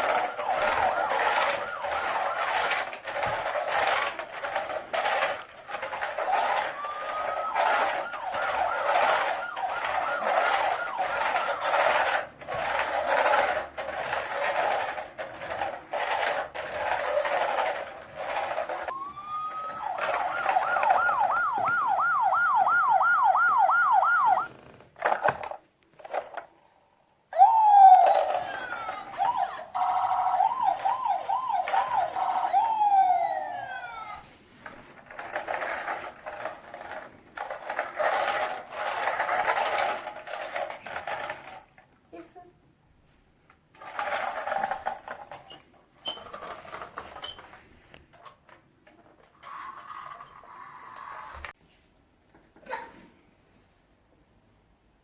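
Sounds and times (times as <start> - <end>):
toy police siren: 0.0 - 13.5, 18.8 - 24.5, 27.4 - 34.2.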